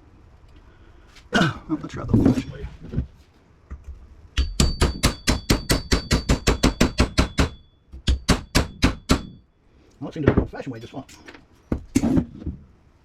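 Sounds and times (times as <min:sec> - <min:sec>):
high metallic ring: 0:07.2 - 0:07.9.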